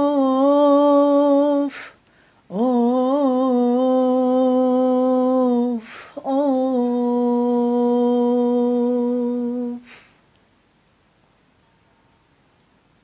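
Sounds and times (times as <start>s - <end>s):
person singing long lament notes: 0.0s - 10.2s
quick breath: 1.7s - 2.5s, 9.8s - 10.2s.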